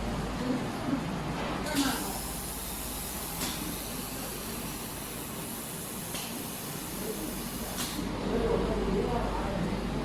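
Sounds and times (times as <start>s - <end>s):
laser welding machine hiss: 1.8s - 8.1s.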